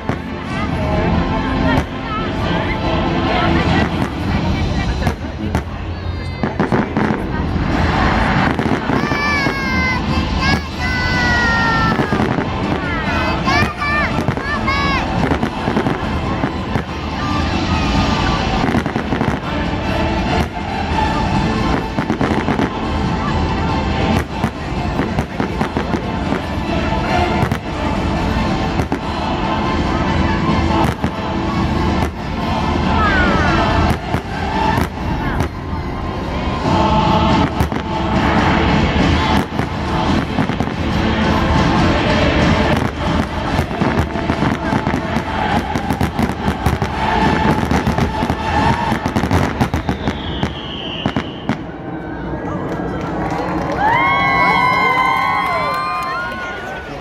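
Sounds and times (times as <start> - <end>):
fireworks bangs and crackling: 0.0 - 1.0, 1.6 - 2.1, 3.4 - 51.8
high whistling firework: 42.6 - 51.8.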